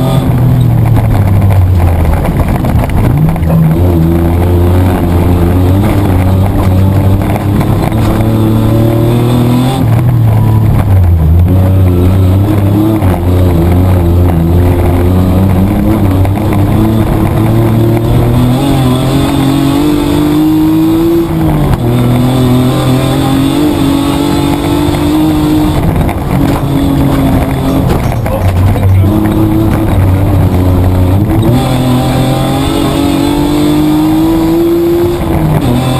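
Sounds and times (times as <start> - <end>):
car engine revving through gears: 0.0 - 35.9.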